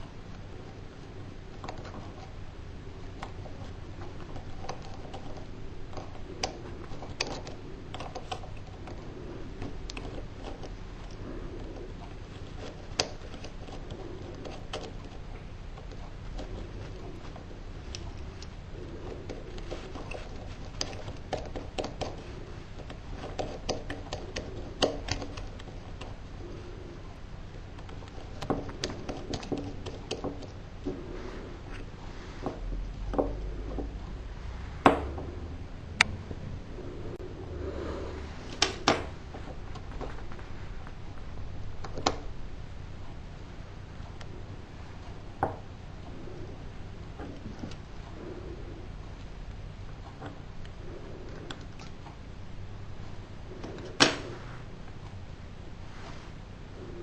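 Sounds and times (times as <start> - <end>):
steady low hum: 0.0 - 57.0
small tools clicking and tapping: 19.2 - 26.2, 27.8 - 30.6.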